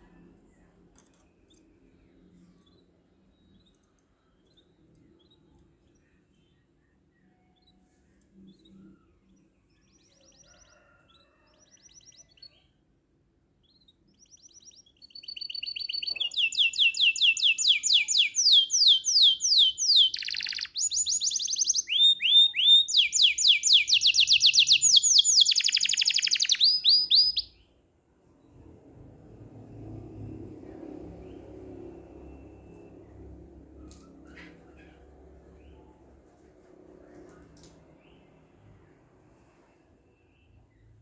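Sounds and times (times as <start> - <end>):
songbird singing: 13.6 - 27.7.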